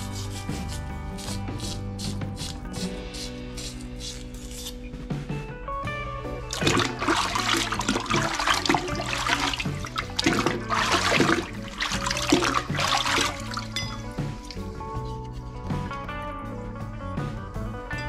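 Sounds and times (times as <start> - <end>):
background music: 0.0 - 18.0
water sloshing and splashing: 6.5 - 14.8.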